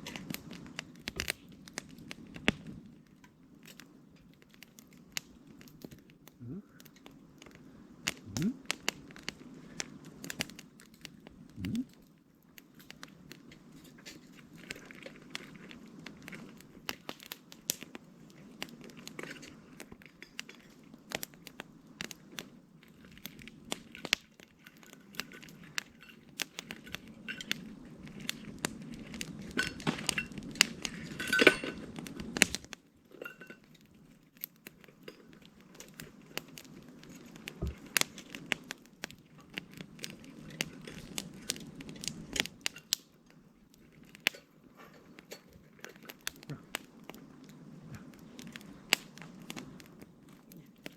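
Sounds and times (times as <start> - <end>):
campfire crackling and popping: 0.0 - 50.9
rush of flame: 6.4 - 12.0, 25.8 - 32.8, 45.9 - 50.9.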